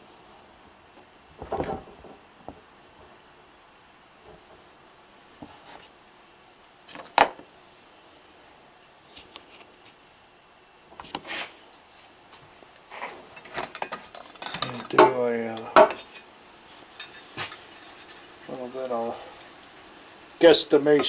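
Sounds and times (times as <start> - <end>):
rustling: 0.0 - 7.5, 10.9 - 14.9
objects knocking on workbench: 1.4 - 2.6.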